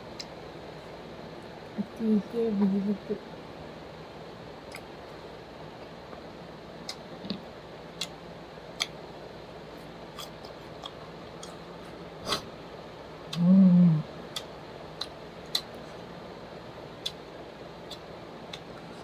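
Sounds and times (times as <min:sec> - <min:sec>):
lip smacks and chewing clicks: 0:04.7 - 0:04.9, 0:08.0 - 0:09.0, 0:10.2 - 0:11.6, 0:14.3 - 0:15.9, 0:17.8 - 0:18.8
person humming mmm: 0:13.3 - 0:14.1.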